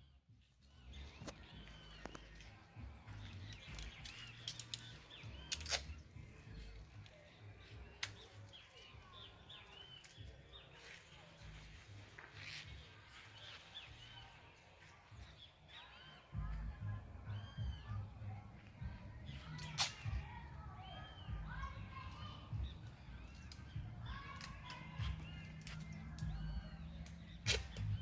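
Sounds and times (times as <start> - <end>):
small birds chirping: 0.0 - 28.0
sharp clicks: 3.2 - 6.0, 22.9 - 28.0.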